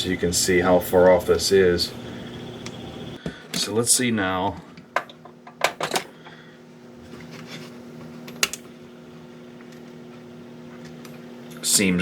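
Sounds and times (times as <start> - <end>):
small motor humming: 1.2 - 3.2.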